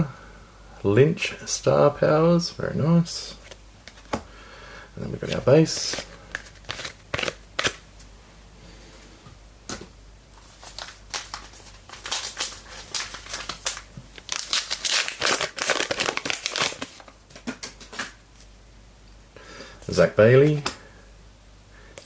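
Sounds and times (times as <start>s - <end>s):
cards being handled: 5.2s - 7.8s
wrapper crinkling and tearing: 5.8s - 7.8s, 10.5s - 18.0s.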